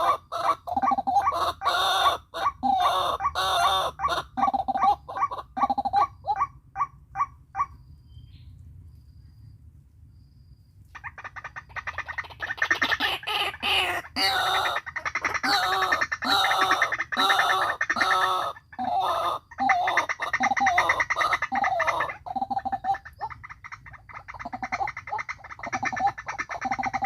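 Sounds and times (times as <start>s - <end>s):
bird croaking call: 0.0s - 7.8s, 10.9s - 27.0s.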